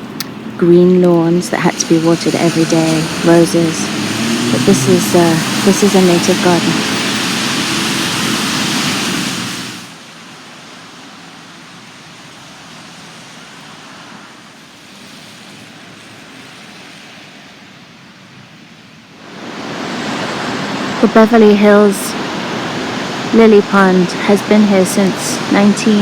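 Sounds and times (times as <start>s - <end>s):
heavy rain hissing: 0.7s - 10.3s, 19.2s - 26.0s.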